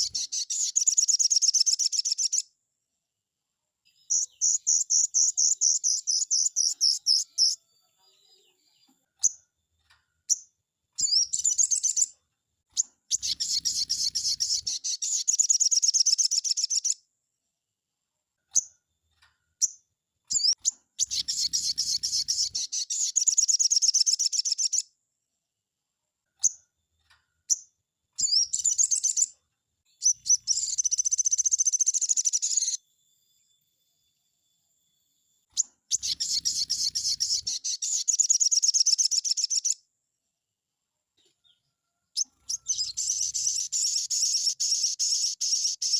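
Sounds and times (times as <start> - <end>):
bird trilling: 0.0 - 2.4, 4.1 - 7.6, 12.8 - 17.0, 20.3 - 24.8, 28.2 - 29.3, 30.0 - 32.8, 35.6 - 39.8, 42.2 - 45.9
sharp bird chirps: 0.0 - 2.5, 3.9 - 8.5, 10.3 - 17.0, 19.6 - 24.9, 27.5 - 32.8, 35.5 - 39.8, 41.2 - 45.9.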